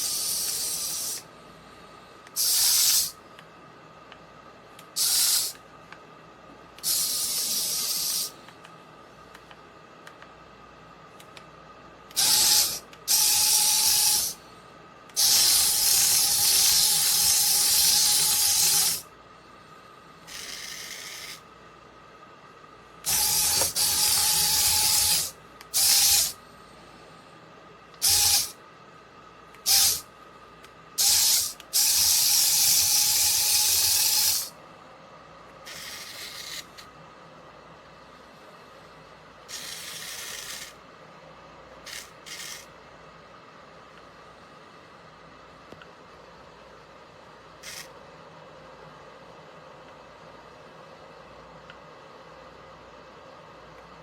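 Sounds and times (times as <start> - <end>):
tiny electric motors whirring: 0.0 - 1.2, 2.4 - 3.1, 5.0 - 5.6, 6.8 - 8.3, 12.1 - 14.4, 15.2 - 19.0, 20.3 - 21.4, 23.1 - 26.4, 28.0 - 28.5, 29.7 - 30.0, 31.0 - 34.5, 35.7 - 36.8, 39.5 - 40.8, 41.9 - 42.7, 47.6 - 47.9.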